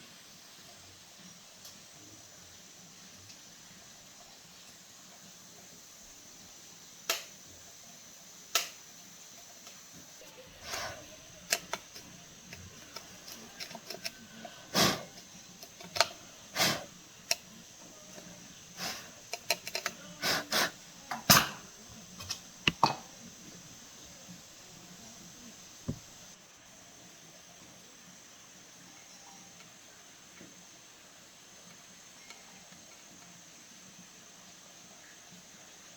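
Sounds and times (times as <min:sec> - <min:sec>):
clicks and taps of small tools: 0:22.2 - 0:23.0.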